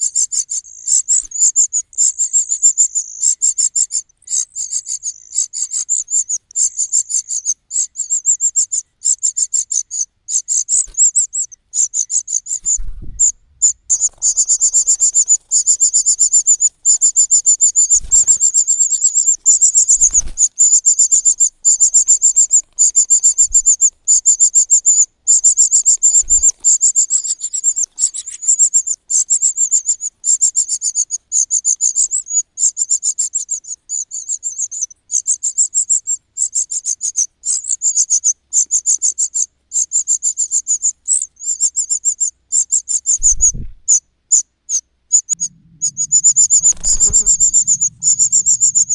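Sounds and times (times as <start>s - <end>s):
chick begging calls: 12.5s - 24.3s, 45.2s - 48.9s
low thumps: 12.6s - 15.3s, 43.2s - 43.9s, 45.3s - 48.9s.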